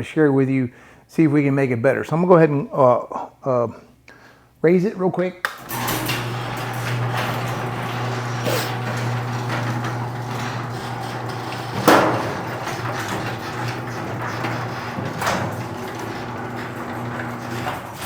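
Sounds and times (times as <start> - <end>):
garage door clanking: 5.6 - 18.0
garage door motor humming: 5.6 - 18.0.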